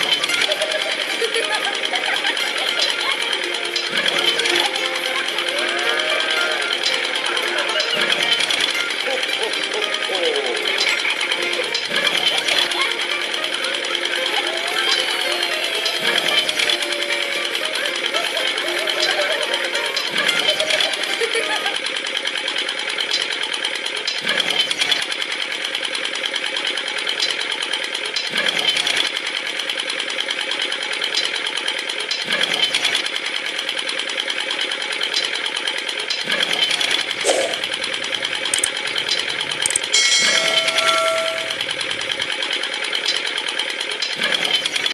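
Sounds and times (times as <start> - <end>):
model mechanism rattling: 0.0 - 44.9
brief squeal: 40.3 - 41.8.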